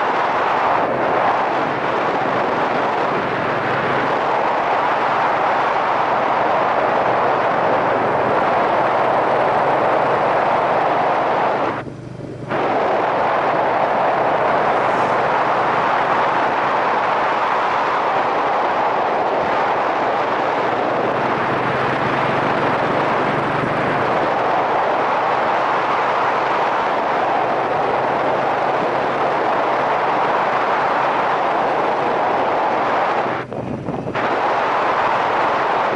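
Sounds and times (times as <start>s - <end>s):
wind rushing over microphone: 0.0s - 35.9s
motorcycle engine: 1.2s - 17.3s, 20.2s - 26.6s, 32.6s - 35.9s.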